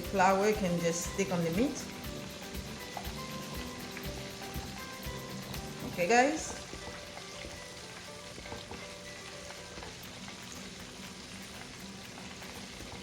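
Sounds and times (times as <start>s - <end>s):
chicken frying in oil: 0.0s - 13.0s.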